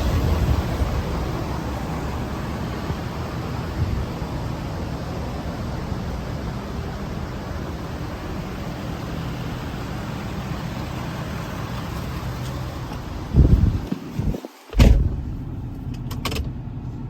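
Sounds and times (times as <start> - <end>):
diesel engine idling: 0.0 - 17.0
loud low thump: 14.7 - 15.4.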